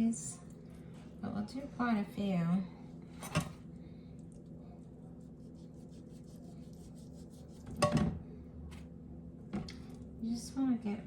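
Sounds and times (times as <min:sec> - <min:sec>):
steady low hum: 0:00.0 - 0:11.0
rubbing and scraping raw chicken: 0:04.7 - 0:07.8.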